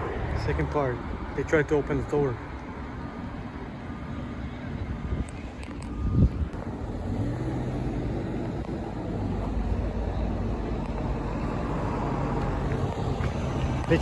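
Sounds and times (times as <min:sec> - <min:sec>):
car engine humming: 0:05.3 - 0:14.0.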